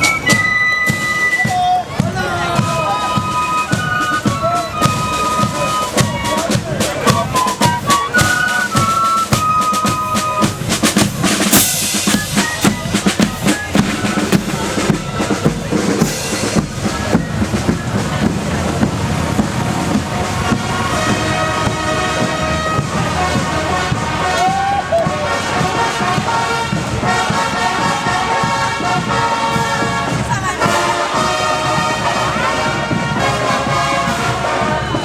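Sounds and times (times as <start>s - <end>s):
high piping melody: 0.0s - 24.9s
snare and bass drums: 0.0s - 35.0s.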